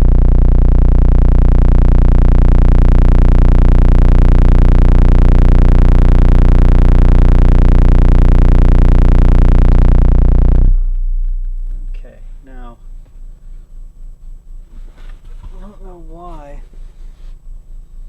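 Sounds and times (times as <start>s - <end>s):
deep bass note from subwoofers: 0.0s - 18.0s.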